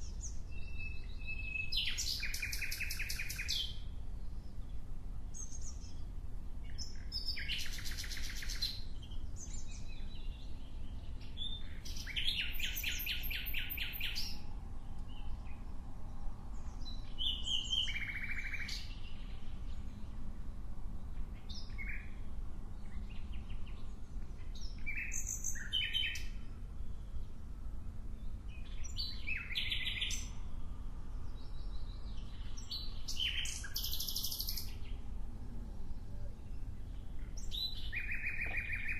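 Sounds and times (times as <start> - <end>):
songbird trills: 0.0 - 20.2, 20.9 - 27.5, 28.1 - 30.6, 31.2 - 38.9
steady low rumble: 14.4 - 25.0, 26.2 - 38.9.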